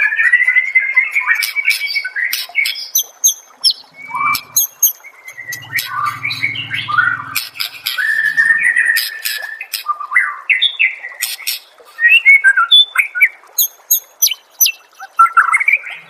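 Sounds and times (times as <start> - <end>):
low buzzing rattle: 3.9 - 4.6, 5.3 - 9.0.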